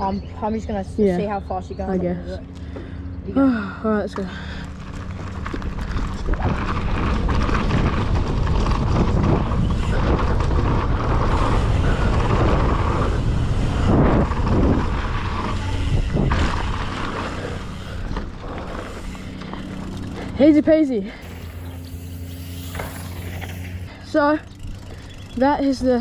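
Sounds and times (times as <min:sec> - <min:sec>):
bike tyres rolling on dirt: 0:04.4 - 0:20.5, 0:21.2 - 0:26.0
wind rushing over microphone: 0:05.4 - 0:19.2.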